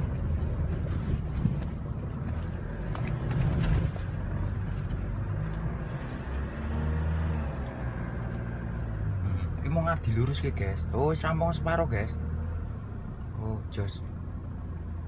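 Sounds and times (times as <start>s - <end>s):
engine and road drone: 0.0s - 15.0s.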